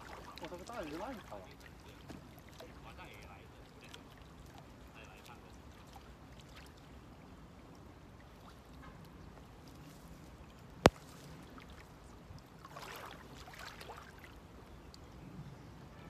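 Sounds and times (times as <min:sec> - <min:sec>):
water splashing: 0:00.0 - 0:09.6, 0:10.4 - 0:14.5
faint water sounds: 0:00.0 - 0:16.0.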